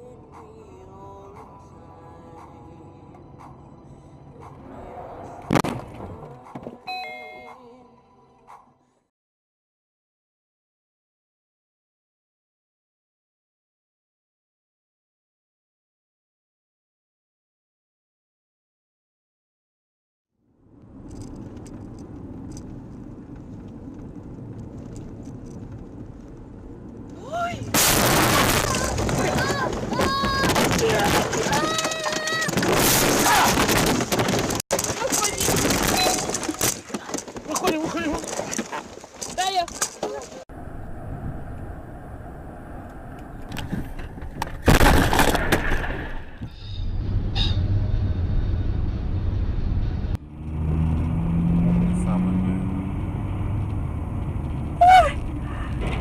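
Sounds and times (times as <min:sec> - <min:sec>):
low vehicle rumble: 0:00.0 - 0:06.8, 0:20.4 - 0:32.8, 0:40.2 - 0:44.7, 0:45.7 - 0:56.0
car road and engine noise: 0:00.0 - 0:08.9, 0:20.4 - 0:45.4, 0:46.2 - 0:56.0
car crash impact: 0:05.5 - 0:06.3, 0:27.7 - 0:37.2, 0:43.6 - 0:47.3.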